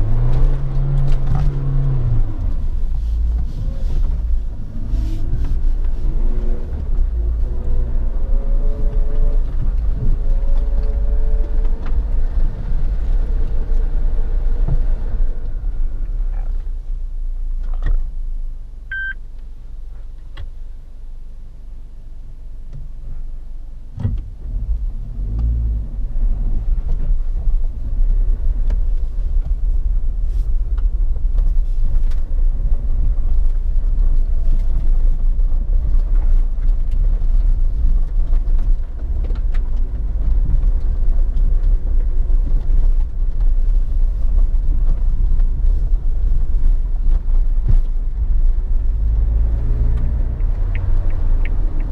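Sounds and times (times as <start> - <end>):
car engine low rumble: 0.0 - 51.9
short beep: 18.9 - 19.2.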